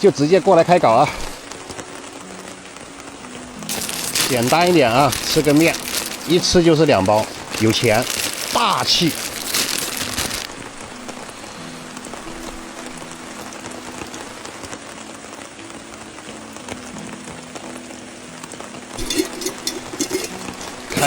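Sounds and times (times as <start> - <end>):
faint background music: 0.0 - 21.0
steady rain falling: 0.0 - 21.0.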